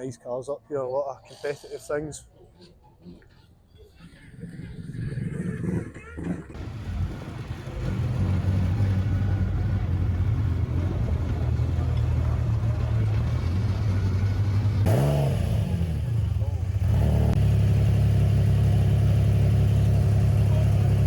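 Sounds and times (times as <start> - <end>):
car engine droning: 6.6 - 21.0.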